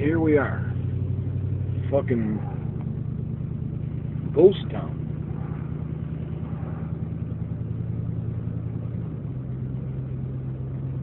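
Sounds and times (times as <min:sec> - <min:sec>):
road noise: 0:00.0 - 0:11.0
truck engine running: 0:00.0 - 0:11.0.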